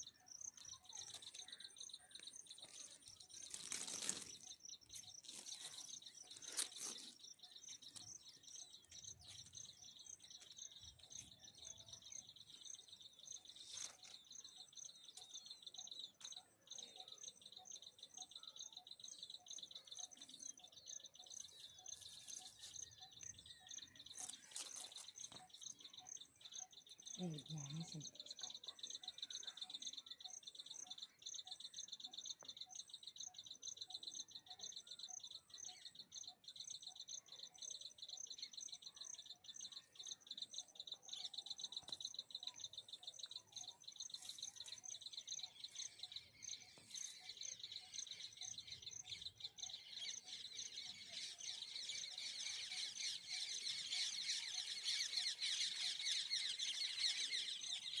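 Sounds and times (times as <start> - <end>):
baby birds cheeping: 17.0 - 58.0.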